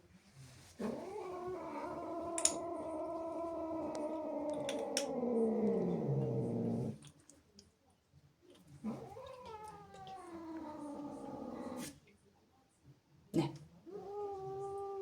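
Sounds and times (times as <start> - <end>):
angry cat yowling: 1.2 - 6.5.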